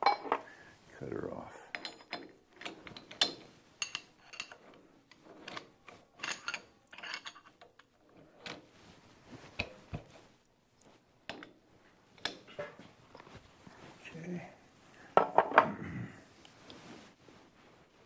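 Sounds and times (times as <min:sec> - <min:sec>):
metal tools clinking: 0:01.7 - 0:04.6, 0:06.2 - 0:07.5.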